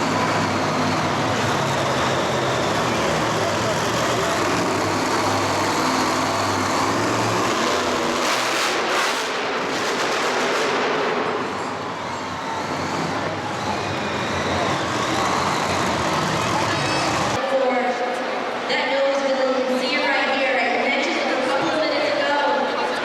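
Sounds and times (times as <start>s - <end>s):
loud vehicle engine running: 0.0s - 17.4s
arena noise: 0.0s - 23.0s.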